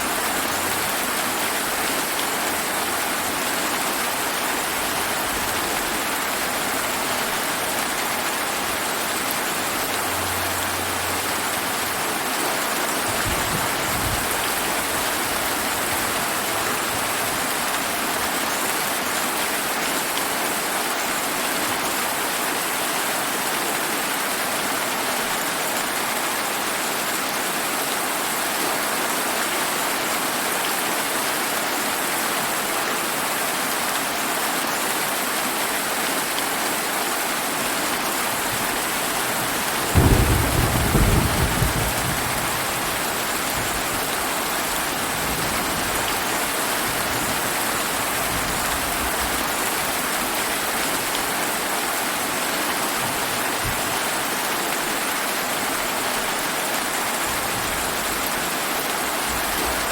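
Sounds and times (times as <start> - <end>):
steady rain falling: 0.0 - 59.9
thunder rumbling: 39.5 - 44.1.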